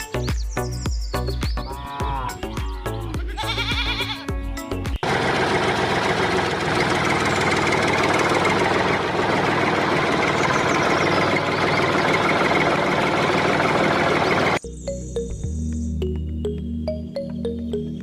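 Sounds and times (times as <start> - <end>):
engine running steadily: 4.9 - 14.6.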